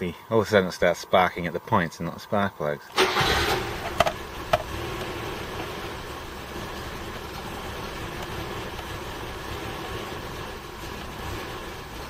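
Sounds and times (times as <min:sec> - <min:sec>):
car engine idling unevenly: 0:03.0 - 0:12.0.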